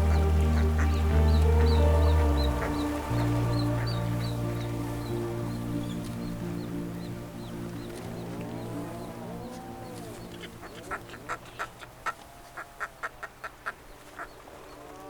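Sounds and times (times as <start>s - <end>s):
background music: 0.0s - 11.7s.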